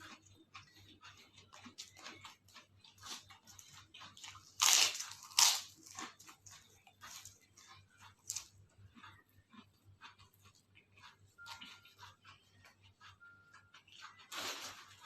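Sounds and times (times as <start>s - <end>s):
person chewing crunchy food: 0.0s - 15.0s
loud crunching bites: 4.5s - 6.2s.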